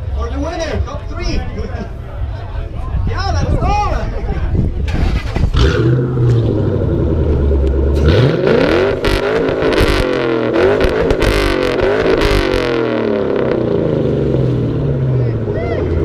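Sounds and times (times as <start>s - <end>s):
exhaust cracks: 4.8s - 15.1s
car engine revving: 4.9s - 16.0s.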